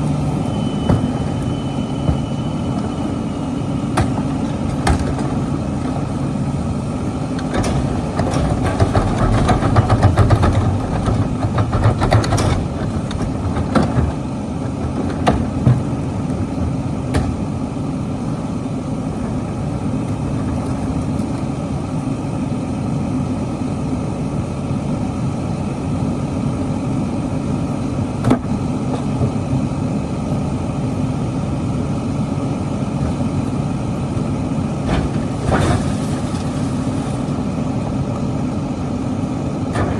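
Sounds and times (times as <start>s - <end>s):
garbage truck engine idling: 0.0s - 39.9s
knocks and clunks: 7.4s - 15.9s.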